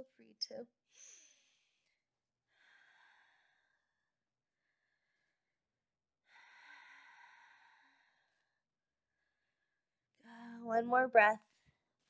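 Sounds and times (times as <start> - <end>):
woman breathing deeply: 2.5 - 4.0, 6.3 - 8.5.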